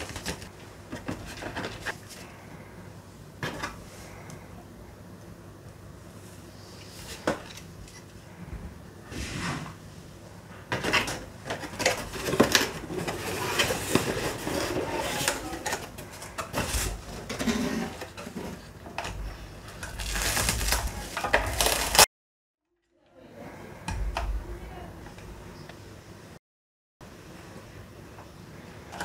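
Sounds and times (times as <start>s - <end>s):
plastic packaging rustling: 0.0s - 2.3s, 11.5s - 22.1s.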